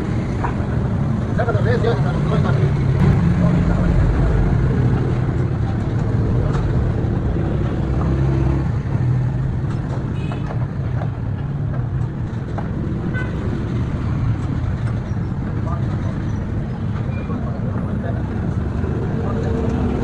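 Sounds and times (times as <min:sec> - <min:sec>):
low rumble of motor vehicles: 0:00.0 - 0:20.0.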